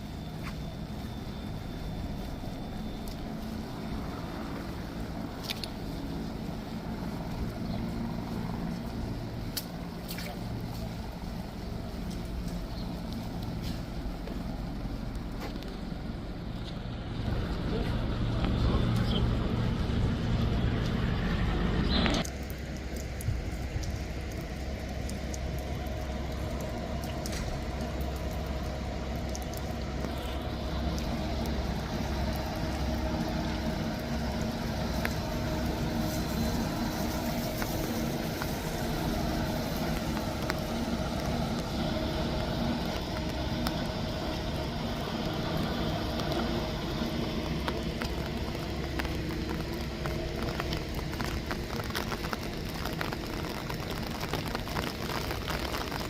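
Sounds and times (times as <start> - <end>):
road noise: 0.0 - 56.0
vehicle engine hum: 0.0 - 56.0.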